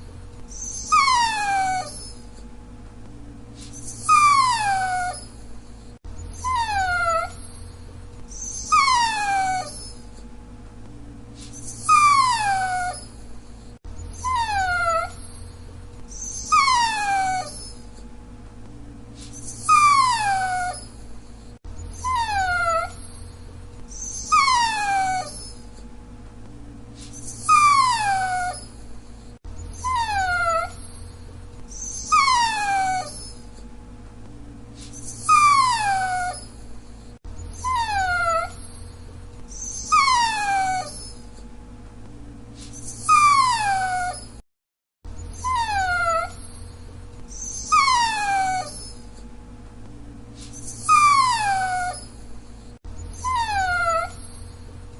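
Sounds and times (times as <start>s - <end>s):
dog whining: 0.0s - 2.5s, 3.6s - 10.3s, 11.4s - 18.1s, 19.2s - 25.9s, 27.0s - 33.7s, 34.8s - 41.5s, 42.6s - 44.4s, 45.1s - 49.3s, 50.4s - 54.9s.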